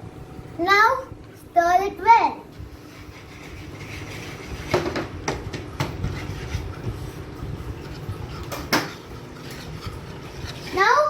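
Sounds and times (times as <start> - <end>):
spoon stirring dry flour: 2.5 - 11.0.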